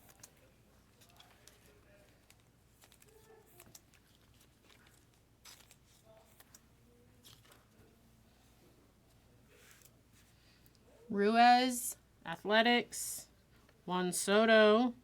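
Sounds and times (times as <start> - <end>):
trading cards clicking and rustling: 0.0 - 7.9.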